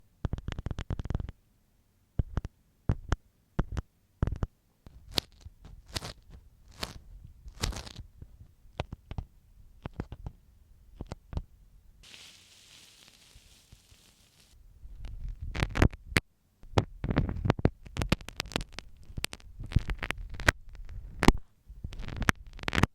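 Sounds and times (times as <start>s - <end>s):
soft brushing hiss: 12.0s - 14.6s.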